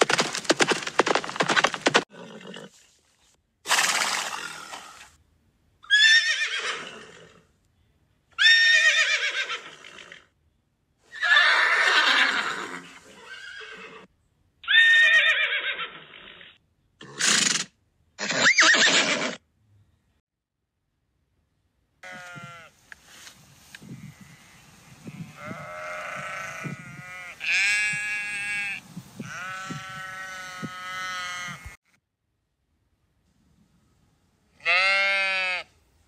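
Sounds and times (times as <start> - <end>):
horses neighing: 0.0 - 2.8, 5.9 - 7.4, 8.4 - 10.3, 11.1 - 14.1, 14.7 - 19.4.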